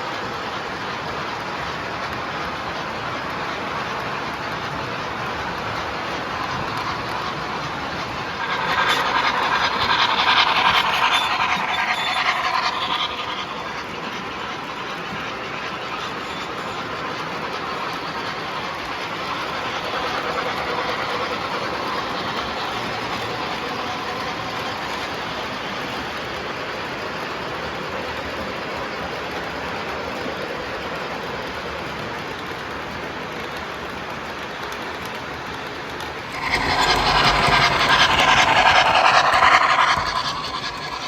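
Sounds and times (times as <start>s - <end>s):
model train wheels rolling: 0.0s - 41.0s
locomotive sound system: 5.8s - 16.9s, 36.3s - 41.0s.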